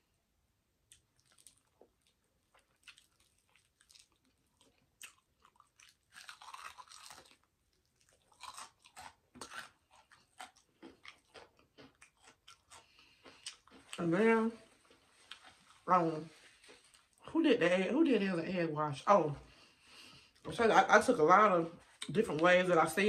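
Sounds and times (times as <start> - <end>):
crunching bites and chewing: 0.9 - 14.0.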